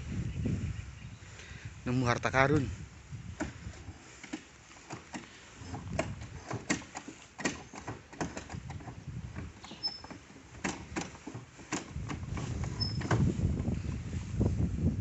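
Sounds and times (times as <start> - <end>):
tools and metal parts clicking: 4.2 - 13.2.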